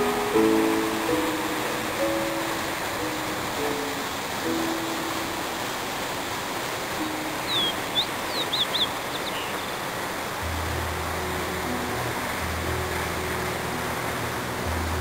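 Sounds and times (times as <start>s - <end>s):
steady hiss: 0.0s - 15.0s
small bird chirping: 7.4s - 9.8s.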